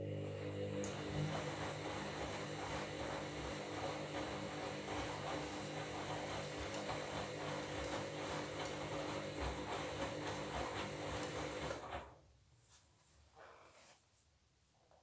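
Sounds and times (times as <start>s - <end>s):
washing machine motor hum: 0.0s - 12.2s.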